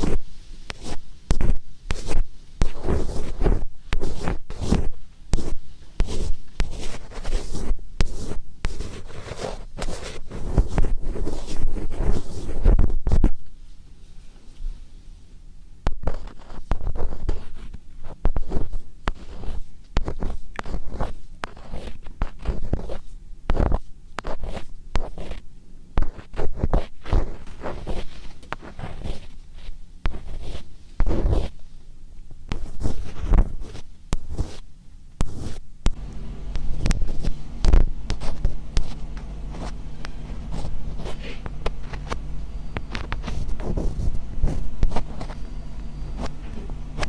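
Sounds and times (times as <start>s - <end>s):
scratching on microphone: 0.0s - 13.4s, 15.9s - 25.4s, 26.0s - 31.6s, 32.5s - 47.0s
low hum: 35.8s - 47.0s.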